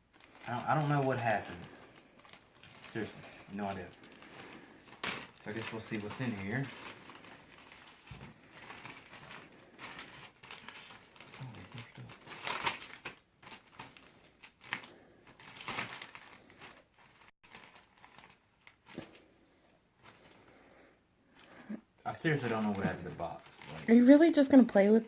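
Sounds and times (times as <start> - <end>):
plastic bag crinkling: 0.0 - 19.3, 22.1 - 24.4.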